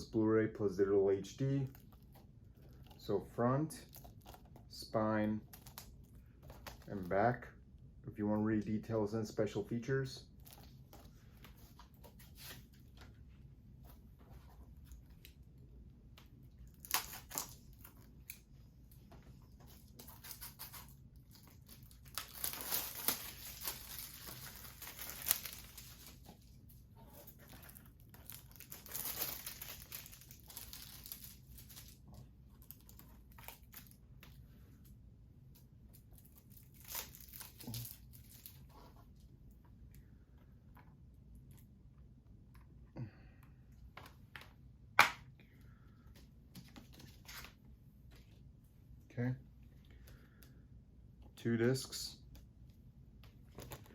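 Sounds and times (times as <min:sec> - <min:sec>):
rustling and handling: 0:10.2 - 0:41.7, 0:52.3 - 0:53.9
plastic wrapping tearing and crinkling: 0:16.6 - 0:18.4, 0:19.7 - 0:32.0, 0:36.1 - 0:38.8.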